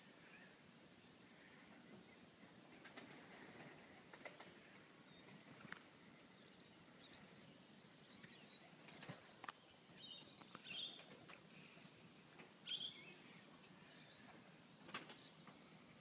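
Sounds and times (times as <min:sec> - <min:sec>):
faint bird chirps: 0:06.2 - 0:14.4.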